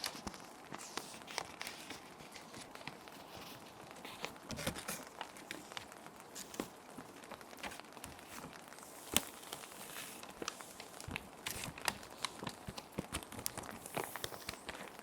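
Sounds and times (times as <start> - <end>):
plastic sheet protectors crinkling: 0.0 - 15.0
paper sheets sliding: 7.6 - 15.0.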